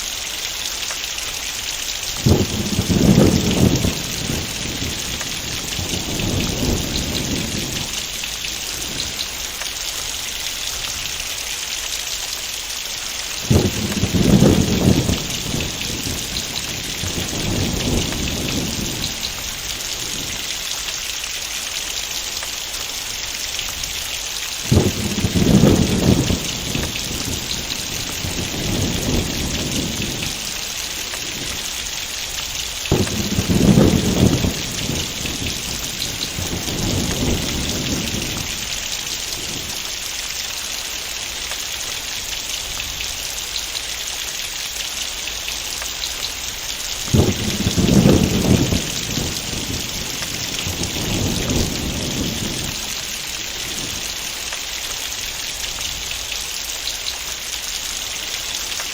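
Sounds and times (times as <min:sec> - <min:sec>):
heavy rain: 0:00.0 - 0:58.9
thunder rumbling and clapping: 0:02.1 - 0:09.8, 0:13.4 - 0:20.6, 0:24.6 - 0:39.9, 0:46.9 - 0:56.2.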